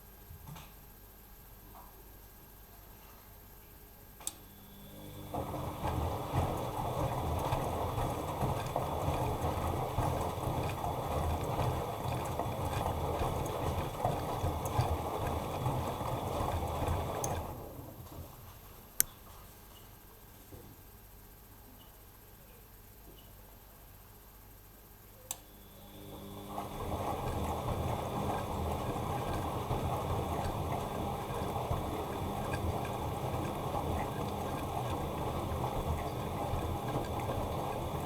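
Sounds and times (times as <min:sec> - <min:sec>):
washing machine drum tumbling: 0:26.5 - 0:38.0.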